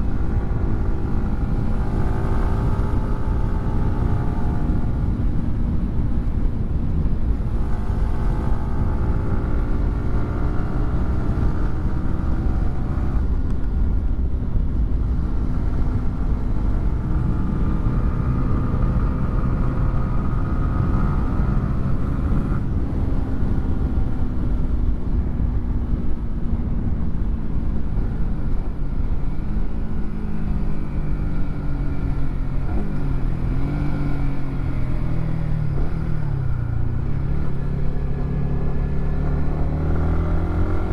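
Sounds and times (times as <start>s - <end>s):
motorcycle engine accelerating: 0.0s - 13.4s, 29.3s - 40.9s
low rumble of wind and road: 0.0s - 40.9s.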